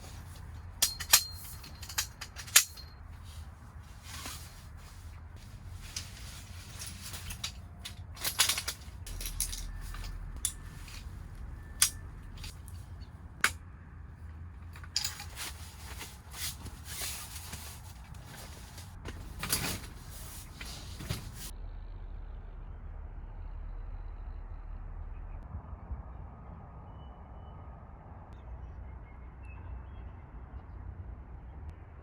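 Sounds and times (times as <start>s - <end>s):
camping gear clicks and knocks: 0.0s - 13.6s, 14.6s - 21.5s
rustling: 0.0s - 13.6s, 14.5s - 21.5s.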